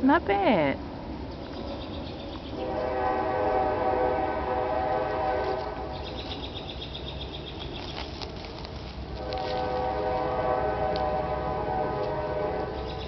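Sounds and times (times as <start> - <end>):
horn held note: 2.6 - 5.9, 9.2 - 12.9.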